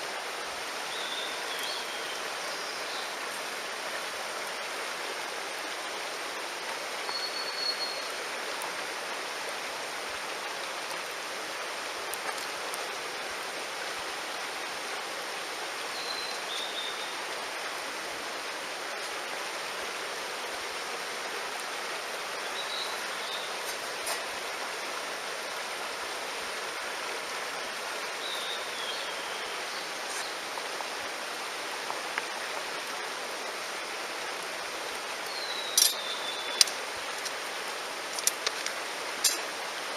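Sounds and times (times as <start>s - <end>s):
stream running: 0.0s - 39.9s
high whistled calls: 7.0s - 8.2s, 35.3s - 36.8s.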